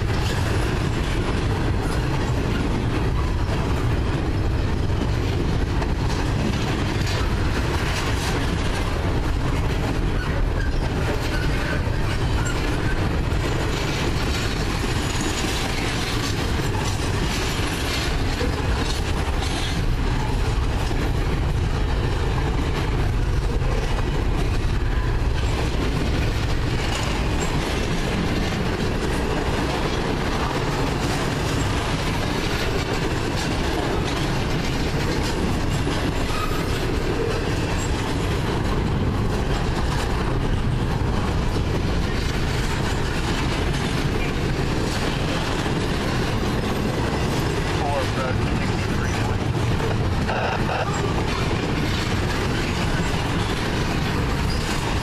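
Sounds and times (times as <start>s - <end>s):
steel wheels running on rails: 0.0s - 55.0s.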